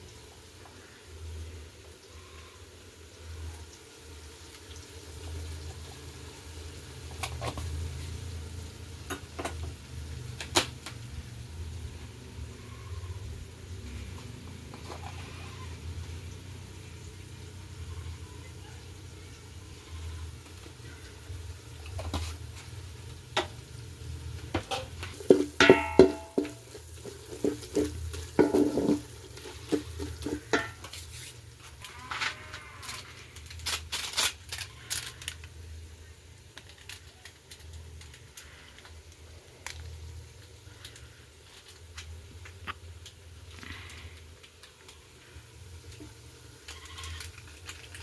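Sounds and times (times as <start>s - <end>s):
metal pots and utensils clinking: 9.1s - 9.8s, 21.8s - 23.6s, 24.4s - 35.2s
ringing metallic clangs: 25.6s - 26.4s.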